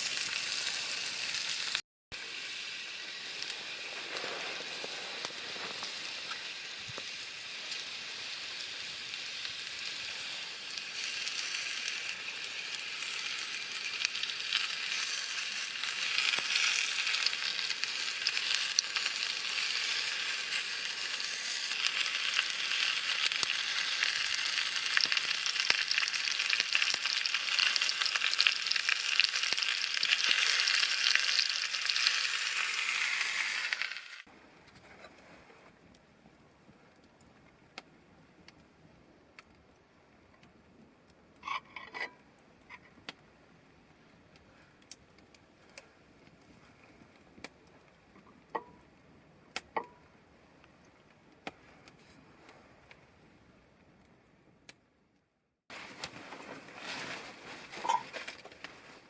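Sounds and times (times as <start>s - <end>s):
campfire crackling and popping: 2.9s - 34.8s, 35.8s - 41.4s, 42.2s - 43.3s, 44.0s - 46.5s, 47.1s - 49.9s.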